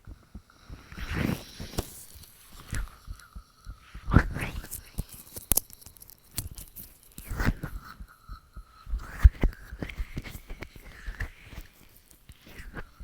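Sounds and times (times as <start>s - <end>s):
scratchy rustling: 0.8s - 8.1s, 8.9s - 13.0s
heartbeat thumps: 2.4s - 5.0s, 7.3s - 11.4s.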